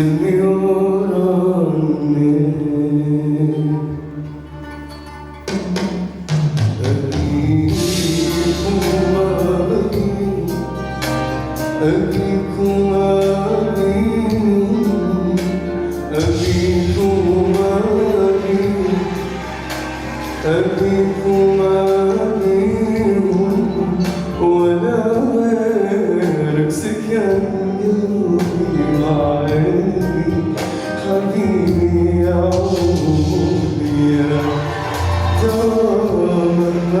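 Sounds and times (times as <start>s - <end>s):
man singing long notes: 0.0s - 4.7s, 5.6s - 37.0s
instrumental accompaniment: 0.0s - 37.0s.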